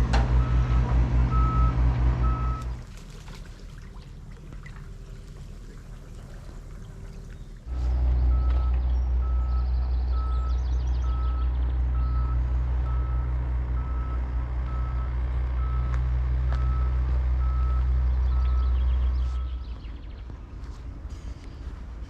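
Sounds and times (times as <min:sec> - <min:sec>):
vehicle reversing alarm beeping: 0:00.0 - 0:02.8, 0:06.9 - 0:19.9
heavy vehicle engine rumble: 0:00.0 - 0:22.0.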